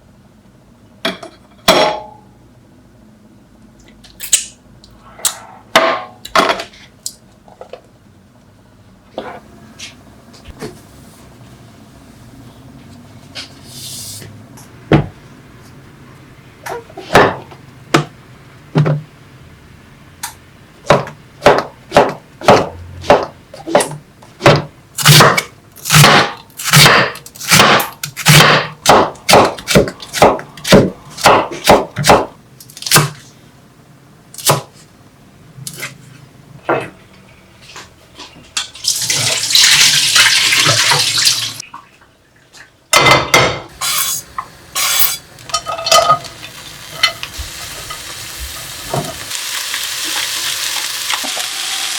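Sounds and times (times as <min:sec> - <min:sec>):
sharp kitchen knocks: 0:14.9 - 0:15.2, 0:17.1 - 0:18.1, 0:20.8 - 0:32.4
kitchen tap running: 0:38.8 - 0:41.6.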